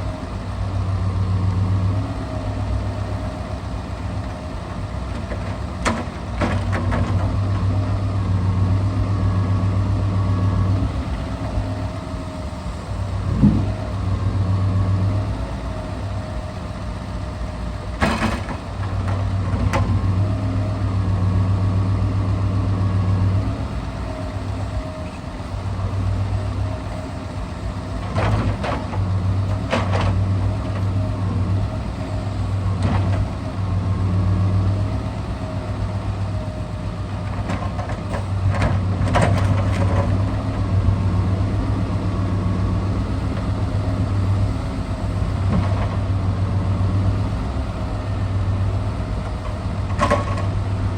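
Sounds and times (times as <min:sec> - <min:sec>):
diesel truck engine running: 0:00.0 - 0:50.9
sharp knocks and clunks: 0:49.2 - 0:50.5.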